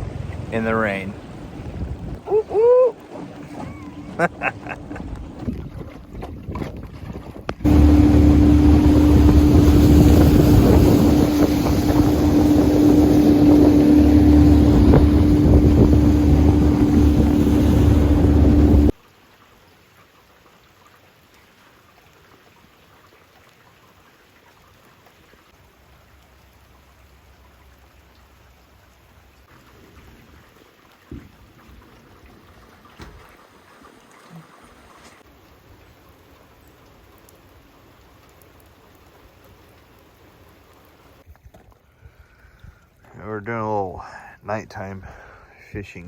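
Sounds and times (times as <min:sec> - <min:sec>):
water rushing: 0:00.0 - 0:06.4, 0:07.6 - 0:19.5, 0:21.0 - 0:41.2
wind: 0:00.0 - 0:46.0
outboard motor running: 0:01.3 - 0:18.9.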